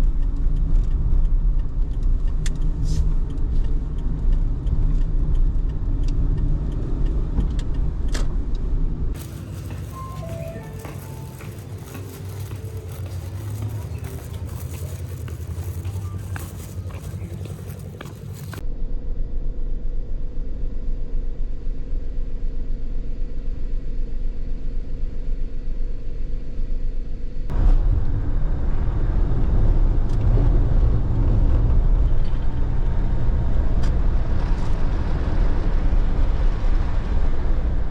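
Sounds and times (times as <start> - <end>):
road noise: 0.0 - 18.6, 27.5 - 37.9
car engine hum: 0.1 - 18.6.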